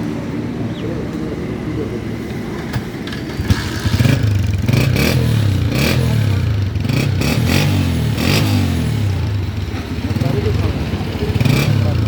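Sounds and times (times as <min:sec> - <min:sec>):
motorcycle engine revving: 0:02.4 - 0:12.0.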